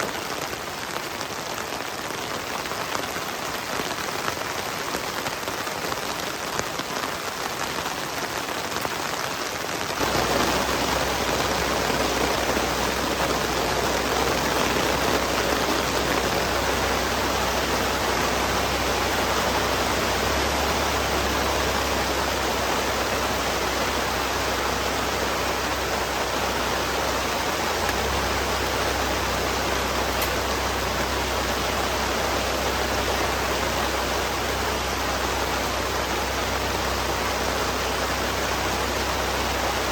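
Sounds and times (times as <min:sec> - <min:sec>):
heavy rain falling: 0:00.0 - 0:39.9
low steady rumble: 0:10.0 - 0:39.9.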